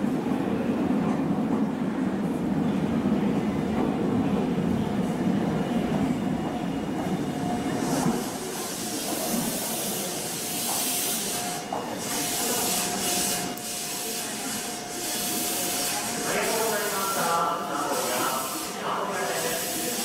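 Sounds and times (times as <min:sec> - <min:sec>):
train rolling rumble: 0:00.0 - 0:16.3
air hissing from train: 0:05.9 - 0:20.0.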